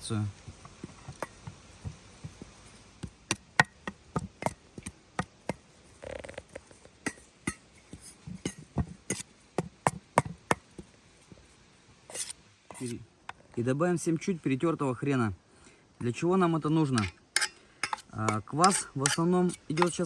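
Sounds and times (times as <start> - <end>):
utensil knocking against bowl: 17.8 - 20.0.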